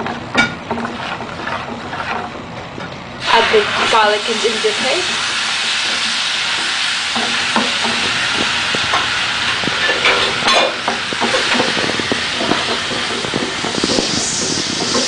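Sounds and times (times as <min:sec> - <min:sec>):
paste sizzling in hot oil: 0:00.0 - 0:02.3, 0:03.2 - 0:15.0
utensil scraping a pan: 0:00.0 - 0:08.5, 0:09.5 - 0:15.0.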